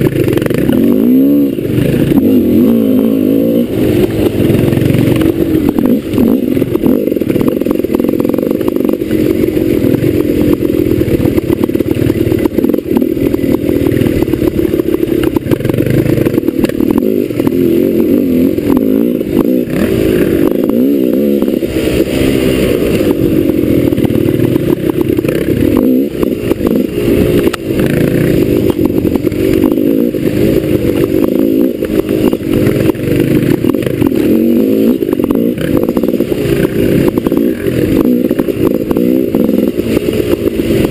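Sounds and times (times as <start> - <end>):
motorcycle engine revving: 0.0 - 40.9
knocks and clatter: 4.0 - 17.7, 22.7 - 40.9.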